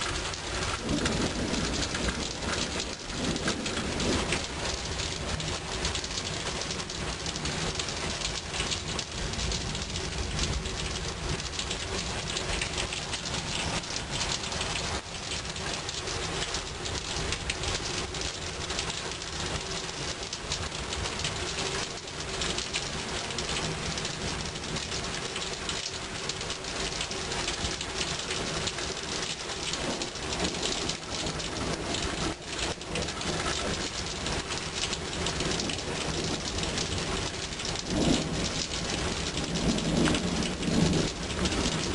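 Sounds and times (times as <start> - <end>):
low thunder rumble: 0.0 - 7.9, 29.7 - 41.9
rain hissing on surfaces: 0.0 - 41.9.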